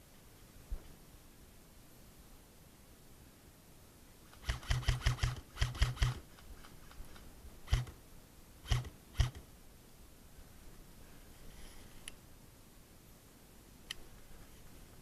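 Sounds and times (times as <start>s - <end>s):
airsoft gun shots: 4.4s - 6.2s, 7.7s - 8.0s, 8.7s - 9.4s.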